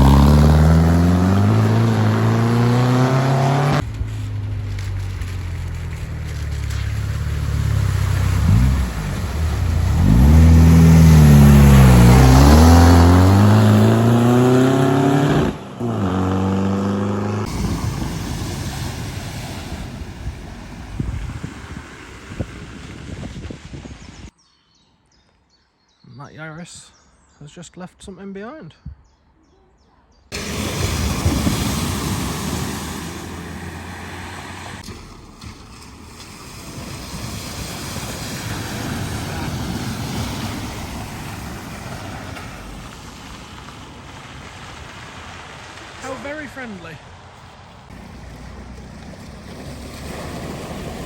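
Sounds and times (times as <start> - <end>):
car engine revving: 0.0 - 22.2, 30.4 - 43.0, 47.9 - 51.0
hiss of water spray: 17.4 - 23.9, 30.3 - 46.8.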